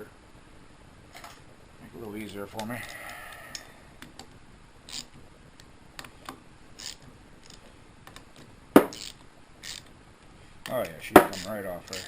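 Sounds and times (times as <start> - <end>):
hand ratchet clicking: 4.9 - 5.1, 6.8 - 8.2, 8.8 - 9.9, 10.6 - 12.0
metal tools clicking: 10.6 - 12.0.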